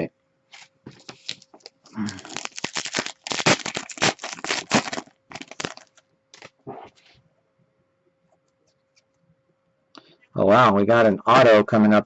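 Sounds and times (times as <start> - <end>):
cards crinkling and crackling: 0.5 - 6.5.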